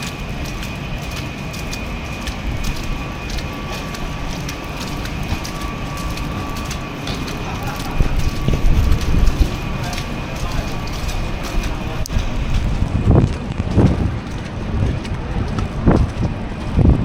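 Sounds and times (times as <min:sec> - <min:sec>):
small irregular clicks and crackles: 0:00.0 - 0:17.0.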